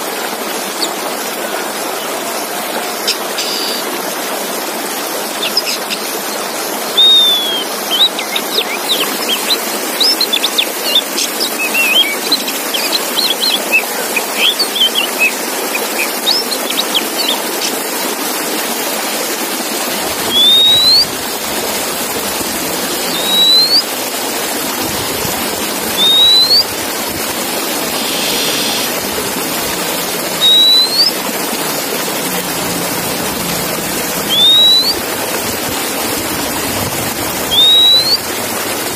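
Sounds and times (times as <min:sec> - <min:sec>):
steady water-like hiss: 0:00.0 - 0:38.9
bird singing chirps and whistles: 0:06.9 - 0:17.7, 0:20.2 - 0:21.2, 0:23.0 - 0:23.9, 0:26.0 - 0:26.8, 0:27.8 - 0:29.0, 0:30.3 - 0:31.3, 0:34.2 - 0:35.2, 0:37.5 - 0:38.4.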